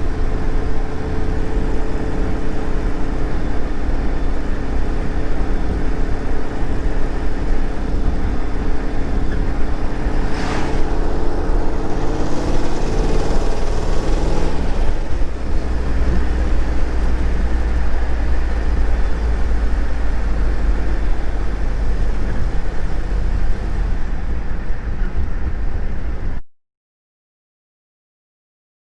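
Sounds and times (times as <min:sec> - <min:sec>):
car engine running: 0:00.0 - 0:25.9
heavy low rumble: 0:00.0 - 0:26.4
brief hiss: 0:10.0 - 0:12.7.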